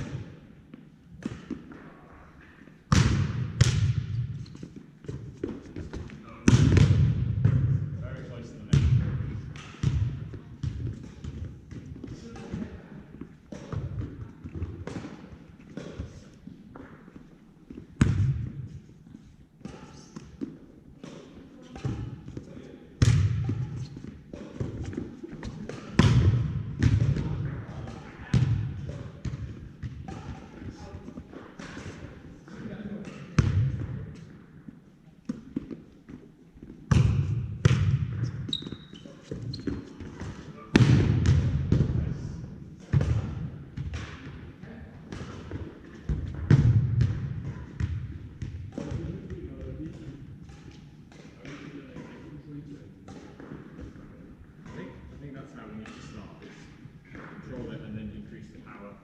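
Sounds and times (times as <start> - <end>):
volleyball slaps: 1.2 - 1.9, 2.9 - 4.3, 5.0 - 7.9, 8.7 - 17.0, 18.0 - 18.6, 19.6 - 32.2, 33.0 - 34.3, 36.8 - 52.4
volleyball thuds on hard floor: 24.3 - 27.5.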